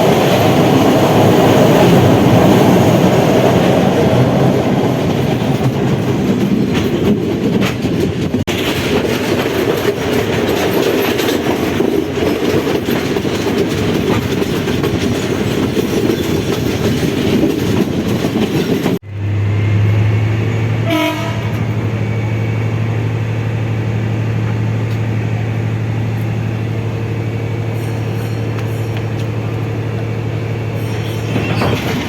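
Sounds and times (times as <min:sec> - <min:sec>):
train wheels clacking on rails: 0:00.0 - 0:19.0, 0:26.1 - 0:32.0.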